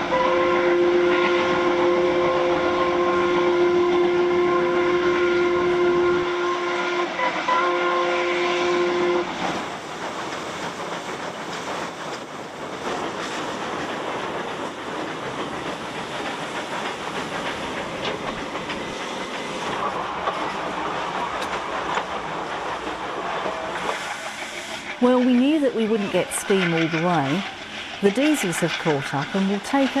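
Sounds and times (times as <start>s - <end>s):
train whistle: 0.0s - 9.4s
train rumbling along track: 0.0s - 30.0s.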